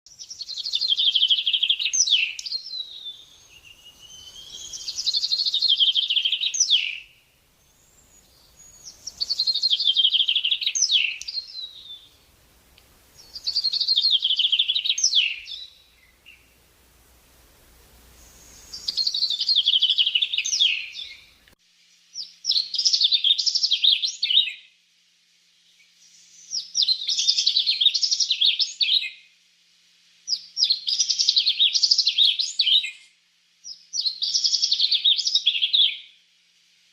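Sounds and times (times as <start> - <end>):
songbird trilling: 0.2 - 12.2, 13.1 - 16.6, 18.1 - 21.4.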